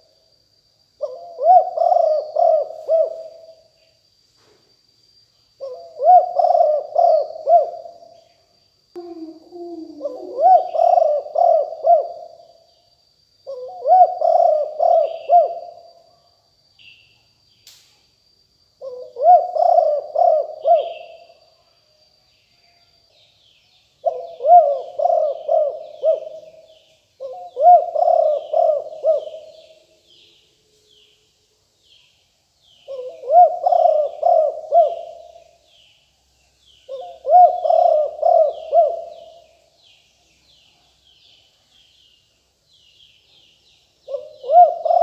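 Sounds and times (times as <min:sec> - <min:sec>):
dove cooing: 0:01.0 - 0:03.6, 0:05.6 - 0:08.0, 0:09.0 - 0:12.4, 0:13.5 - 0:15.9, 0:18.8 - 0:21.3, 0:24.0 - 0:29.7, 0:32.9 - 0:35.5, 0:36.9 - 0:39.6, 0:44.1 - 0:45.0.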